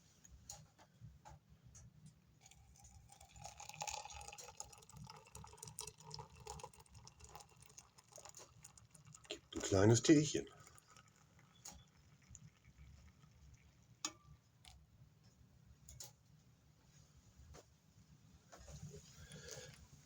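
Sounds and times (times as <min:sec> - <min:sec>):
water poured into a cup: 0:02.4 - 0:14.8.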